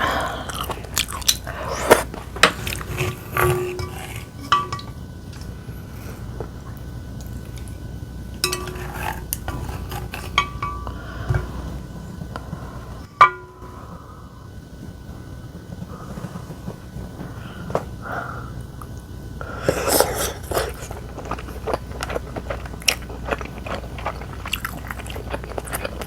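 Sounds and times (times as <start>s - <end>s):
utensils clinking on dishes: 0.1s - 5.6s, 8.3s - 11.8s, 13.0s - 14.0s.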